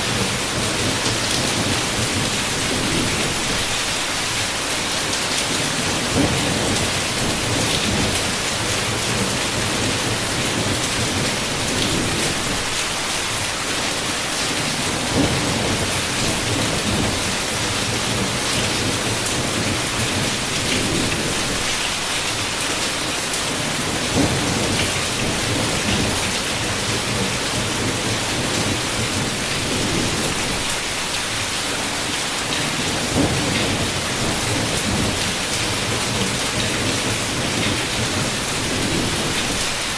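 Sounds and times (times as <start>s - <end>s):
heavy rain on a window: 0.0s - 39.9s
low thunder rumbles: 5.7s - 12.8s, 14.7s - 21.7s, 23.6s - 30.7s, 32.8s - 39.7s.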